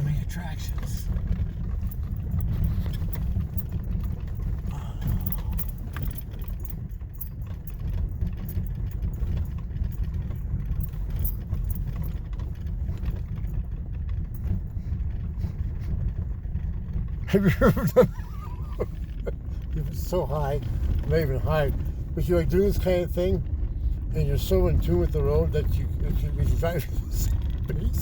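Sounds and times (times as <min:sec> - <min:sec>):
truck engine and tyres rumbling: 0:00.0 - 0:28.0.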